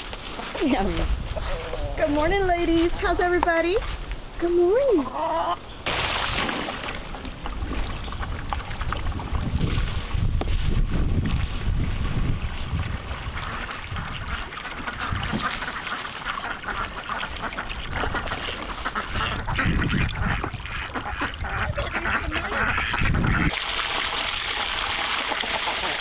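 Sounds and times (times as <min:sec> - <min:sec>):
ducks quacking: 0:00.6 - 0:03.9, 0:04.6 - 0:05.7, 0:13.2 - 0:23.5.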